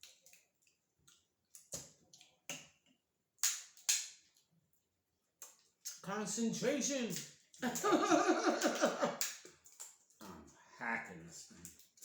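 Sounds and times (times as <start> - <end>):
lobster shell cracking: 3.4 - 4.4, 7.1 - 10.3.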